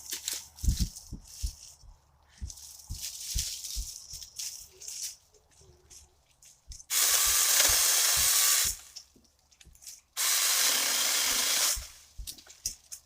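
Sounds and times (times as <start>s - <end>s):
chainsaw cutting branches: 6.9s - 9.0s, 10.2s - 12.3s.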